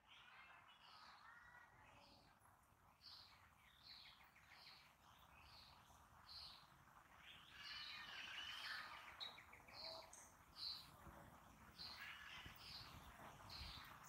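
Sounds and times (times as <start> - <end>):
songbirds chirping: 0.0 - 14.0.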